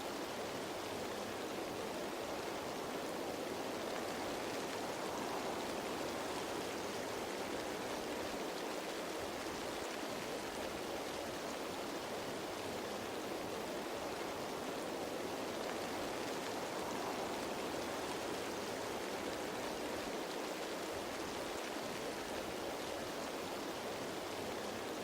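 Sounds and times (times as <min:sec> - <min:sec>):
rain pattering on leaves: 0:00.0 - 0:25.0.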